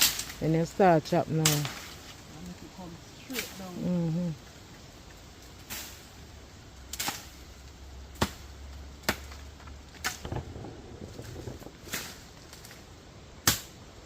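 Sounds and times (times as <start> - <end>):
blade chopping tree trunk: 8.1 - 10.5, 13.4 - 13.8.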